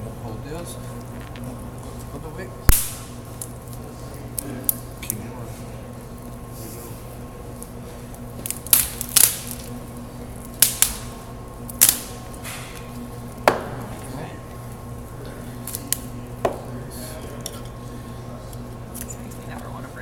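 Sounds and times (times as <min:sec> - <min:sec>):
bones cracking and snapping: 0:02.7 - 0:05.2, 0:07.6 - 0:09.7, 0:10.4 - 0:11.1, 0:11.7 - 0:13.4.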